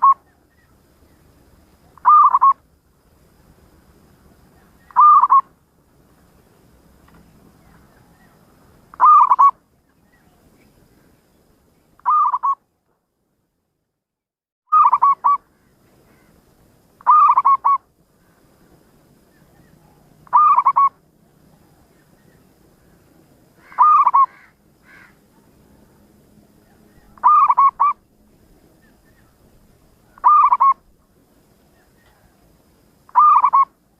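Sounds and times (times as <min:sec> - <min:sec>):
dove cooing: 0:02.0 - 0:02.6, 0:04.8 - 0:05.5, 0:08.9 - 0:09.6, 0:12.0 - 0:12.6, 0:14.8 - 0:15.4, 0:17.0 - 0:17.8, 0:19.5 - 0:21.0, 0:23.6 - 0:25.5, 0:26.6 - 0:28.0, 0:30.1 - 0:30.9, 0:33.1 - 0:33.7.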